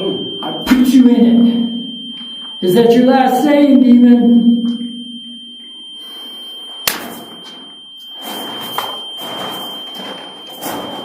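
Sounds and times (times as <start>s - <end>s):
high-pitched electronic beep: 0.0s - 11.0s
sharp click: 6.9s - 7.2s.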